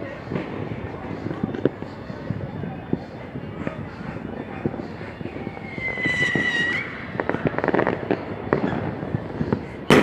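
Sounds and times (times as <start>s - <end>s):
whistling firework: 5.3s - 10.0s
crackling firework pops: 5.8s - 10.0s.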